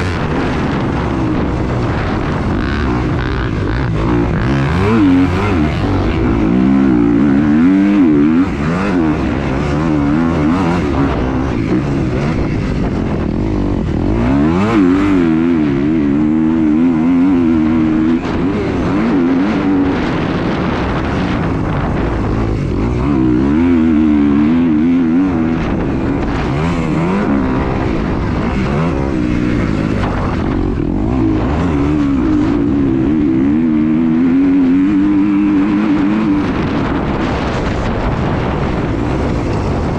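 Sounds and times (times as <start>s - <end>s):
vehicle engine revving: 0.0s - 39.9s.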